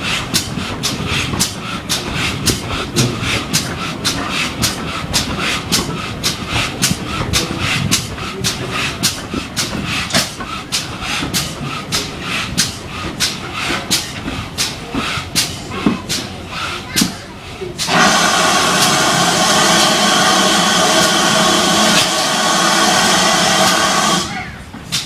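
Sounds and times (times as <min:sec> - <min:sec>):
steam locomotive chuffing: 0:00.0 - 0:25.0.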